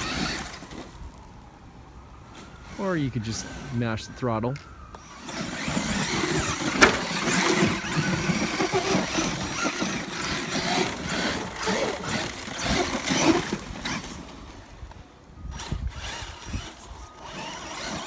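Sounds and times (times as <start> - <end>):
electric motor whining: 0.0 - 0.9, 4.9 - 14.2, 15.5 - 18.0
tyres churning loose dirt: 0.0 - 0.9, 5.0 - 14.7.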